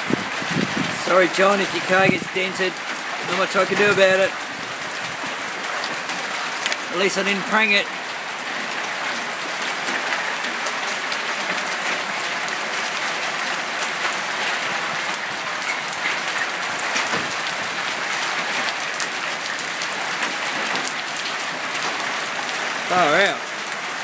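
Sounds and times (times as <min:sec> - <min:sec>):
hail pelting down: 0:00.0 - 0:24.0.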